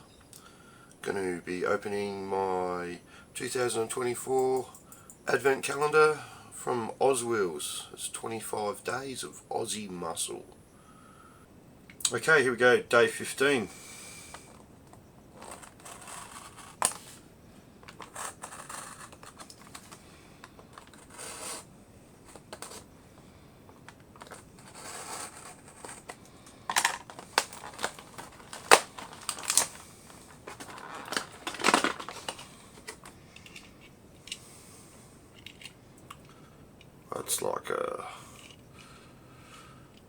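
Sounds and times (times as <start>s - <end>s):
packaging being handled: 14.2s - 17.2s, 17.8s - 33.8s
packaging crinkling: 14.2s - 17.2s, 17.8s - 21.7s, 22.3s - 33.6s
plastic clicks and snaps: 25.8s - 33.7s.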